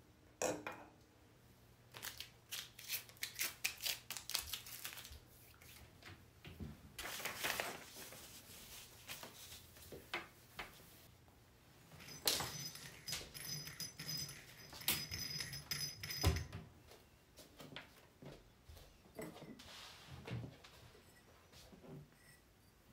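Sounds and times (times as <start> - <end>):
rustling: 7.0 - 11.1.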